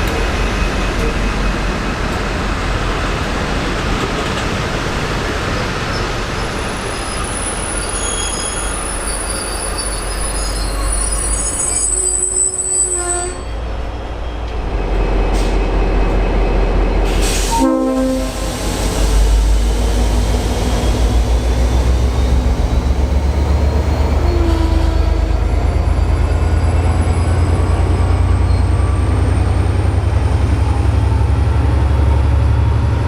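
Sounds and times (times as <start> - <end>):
diesel locomotive engine rumble: 0.0 - 33.0
train rolling noise: 0.0 - 33.0
high-pitched wheel squeal: 6.4 - 13.6.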